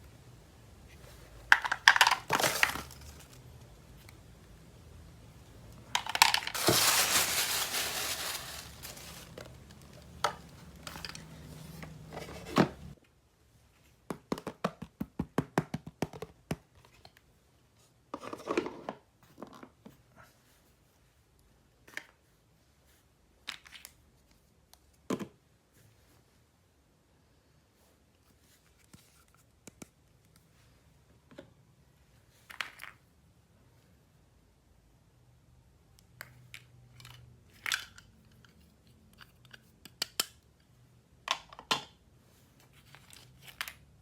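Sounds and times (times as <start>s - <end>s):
packaging tearing and crinkling: 6.1s - 9.4s.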